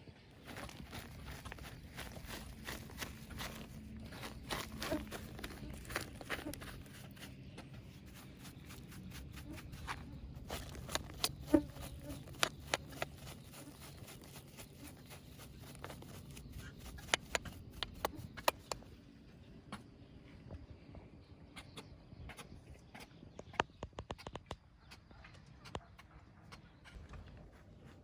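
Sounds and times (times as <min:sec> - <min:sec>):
low steady hum: 0:00.0 - 0:23.3
sharp clicks and knocks: 0:15.5 - 0:18.8.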